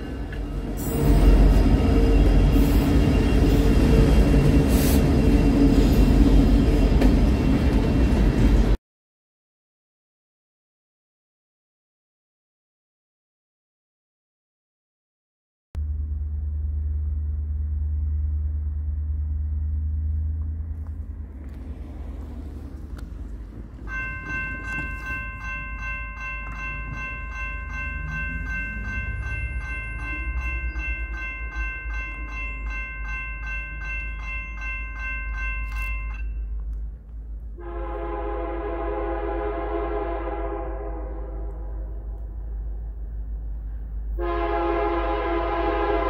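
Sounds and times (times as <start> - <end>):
train rumbling past: 0.0 - 8.8, 15.8 - 46.0
train horn blast: 0.6 - 4.1, 37.6 - 42.3, 44.2 - 46.0.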